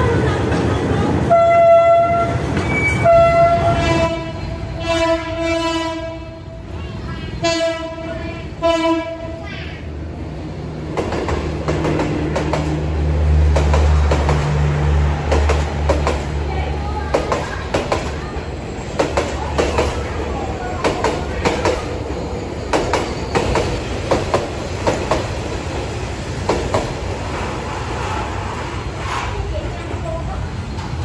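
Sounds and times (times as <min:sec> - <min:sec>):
train rumbling past: 0:00.0 - 0:31.0
train horn blasts: 0:01.3 - 0:06.5, 0:07.4 - 0:09.4.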